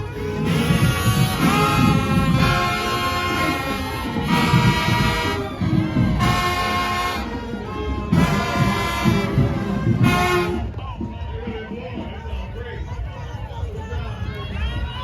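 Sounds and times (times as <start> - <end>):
brass chords: 0.0 - 10.8
marching drums: 0.0 - 14.0.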